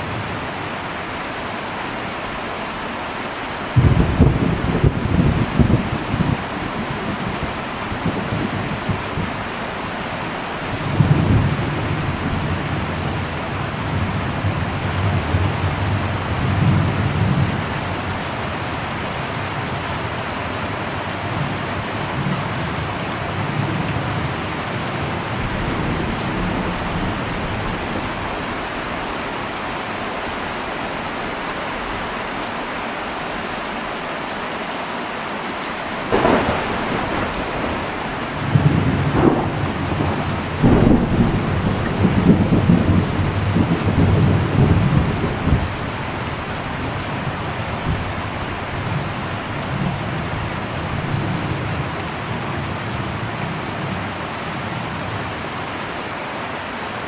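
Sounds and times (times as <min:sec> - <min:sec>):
heavy rain on a metal roof: 0:00.0 - 0:57.0
thunder rumbling: 0:03.8 - 0:20.4, 0:21.2 - 0:29.4, 0:35.8 - 0:52.0.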